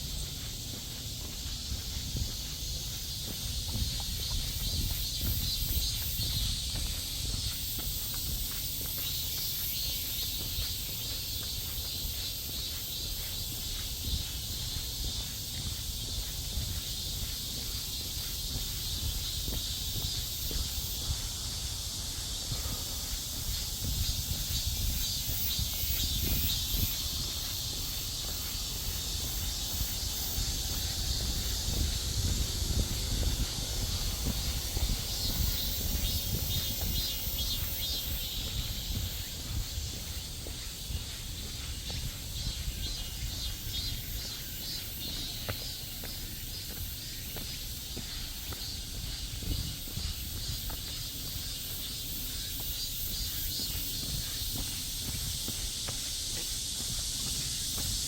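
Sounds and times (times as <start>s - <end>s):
cicadas buzzing: 0.0s - 58.0s
footsteps on a trail: 0.0s - 58.0s
low rumble on microphone: 13.0s - 44.0s.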